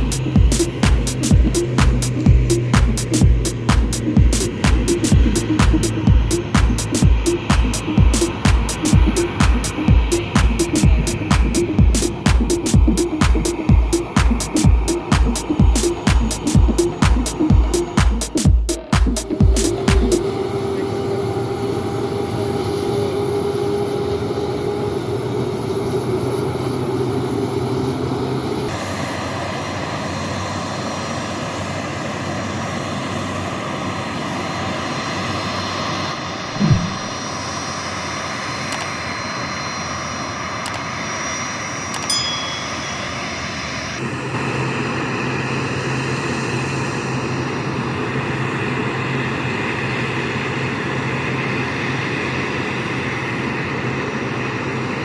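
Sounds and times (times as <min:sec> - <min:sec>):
jet engines whining: 0:00.0 - 0:55.0
dull thump: 0:36.6 - 0:37.2
short knock: 0:36.6 - 0:37.2.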